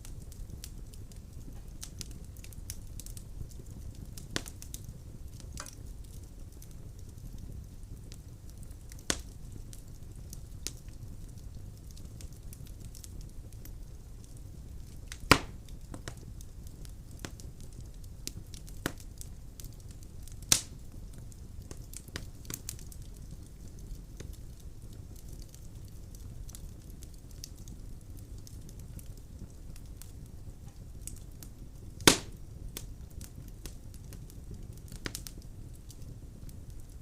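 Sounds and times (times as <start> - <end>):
fire rumbling: 0.0 - 37.0
sharp pops from fire: 0.0 - 37.0
logs crackling: 8.1 - 16.2, 16.8 - 24.7, 32.0 - 37.0.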